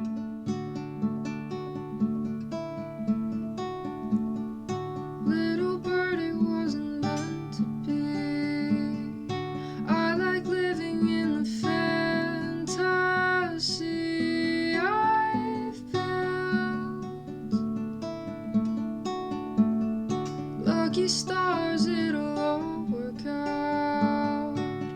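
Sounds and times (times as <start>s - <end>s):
acoustic guitar playing: 0.0s - 24.9s.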